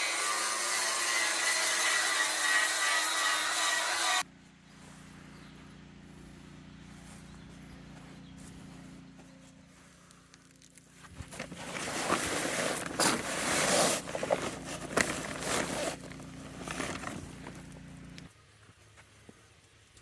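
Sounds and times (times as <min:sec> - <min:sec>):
low steady hum: 0:04.2 - 0:20.0.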